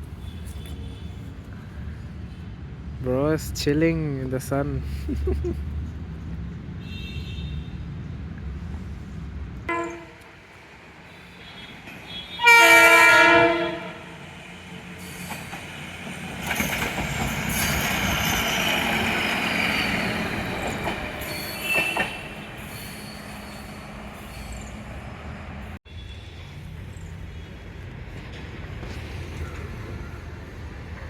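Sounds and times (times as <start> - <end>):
train rumbling past: 7.7 - 31.0
train horn blast: 9.7 - 10.4, 11.4 - 14.2.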